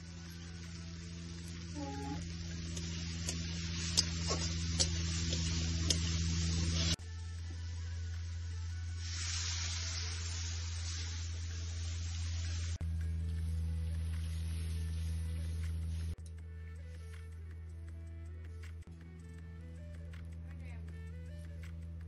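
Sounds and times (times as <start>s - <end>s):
low electrical hum: 0.0s - 8.9s
peas sizzling in a pan: 0.0s - 16.2s
metal spatula clicking on pan: 2.8s - 6.1s.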